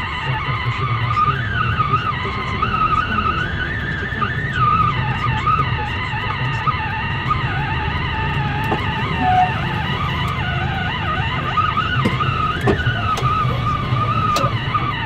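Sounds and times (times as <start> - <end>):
car engine and road rumble: 0.0 - 15.0
car radio melody: 0.0 - 15.0.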